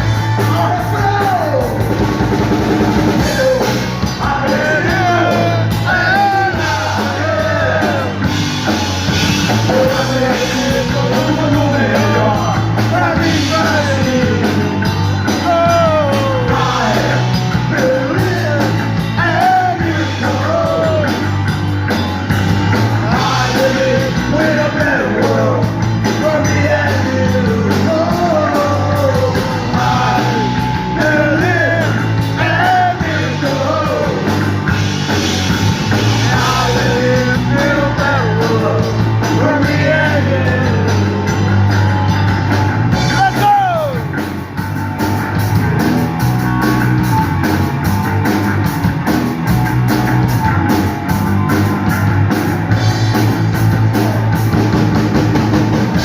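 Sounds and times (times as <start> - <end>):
punk rock band playing: 0.0 - 56.0
person singing lead vocal: 3.1 - 8.4, 9.4 - 21.3, 23.0 - 34.6, 36.0 - 41.4.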